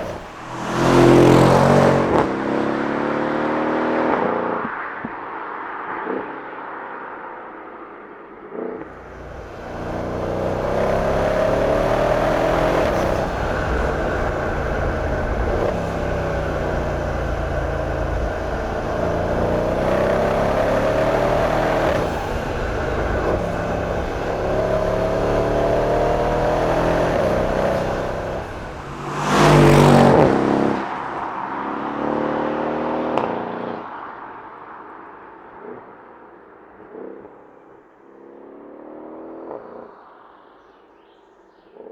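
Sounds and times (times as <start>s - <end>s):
loud rush: 0.0s - 2.6s, 8.9s - 31.2s
car engine accelerating hard: 0.0s - 4.6s, 8.9s - 33.9s.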